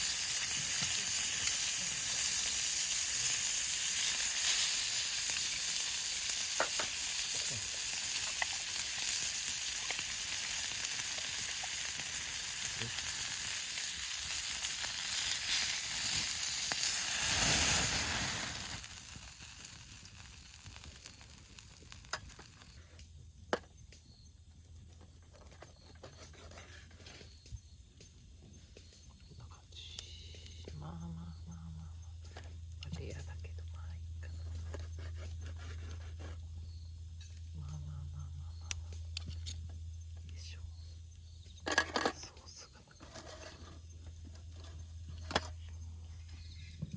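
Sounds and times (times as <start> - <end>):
food sizzling in a frying pan: 0.0 - 22.8.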